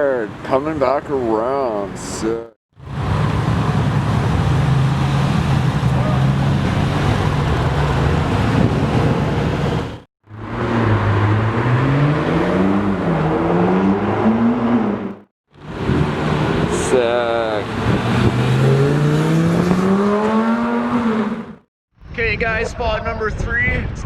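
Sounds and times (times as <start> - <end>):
car accelerating: 2.8 - 21.7
car engine at high revs: 2.8 - 21.7.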